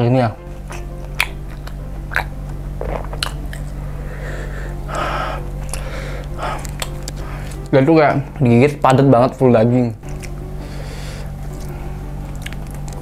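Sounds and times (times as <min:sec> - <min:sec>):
person chewing: 0:00.5 - 0:03.8, 0:04.4 - 0:07.7, 0:10.0 - 0:13.0
wet mouth clicks: 0:00.7 - 0:03.7
breathy sniff: 0:03.7 - 0:07.6, 0:10.6 - 0:12.0.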